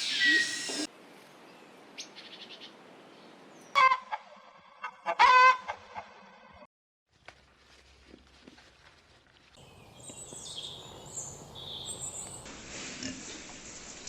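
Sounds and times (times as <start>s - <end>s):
chicken squawking: 5.0s - 5.8s.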